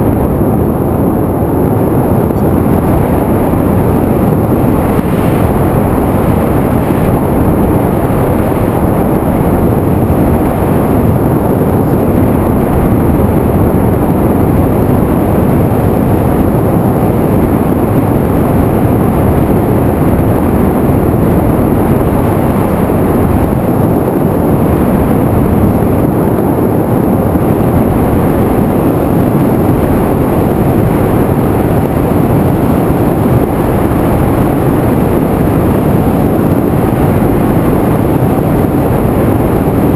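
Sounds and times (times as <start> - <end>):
airflow over microphone: 0.0 - 39.9
motor and propeller noise: 0.0 - 39.9.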